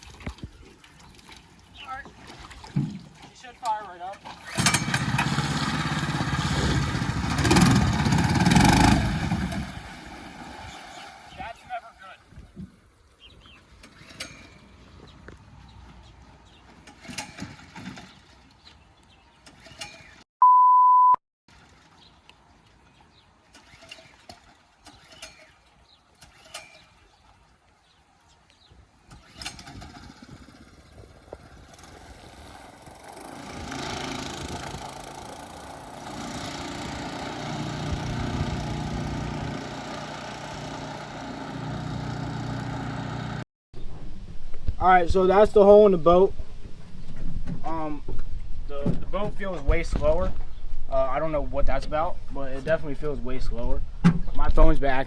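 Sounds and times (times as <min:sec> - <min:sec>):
boat motor running: 0:04.1 - 0:11.5, 0:29.1 - 0:43.4
edit bleep: 0:20.4 - 0:21.2.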